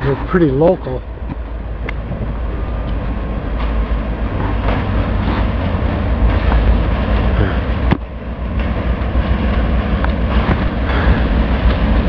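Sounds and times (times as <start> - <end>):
distant diesel locomotive rumble: 0.0 - 12.0
wind buffeting microphone: 0.0 - 12.0.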